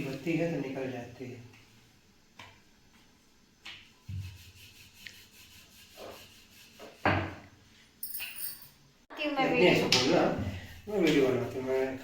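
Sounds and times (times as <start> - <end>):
faint rubbing and scraping: 3.9 - 7.8, 10.2 - 12.0.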